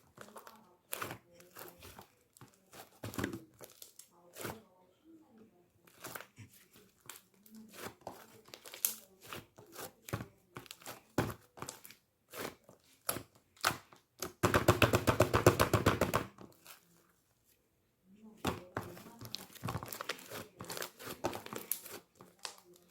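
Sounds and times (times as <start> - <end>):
slime crackling and popping: 7.1 - 9.8, 19.2 - 22.9.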